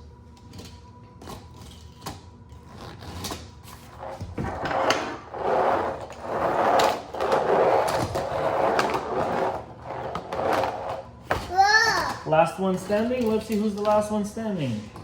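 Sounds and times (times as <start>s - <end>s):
toy trucks rolling and scraping: 3.0s - 11.1s.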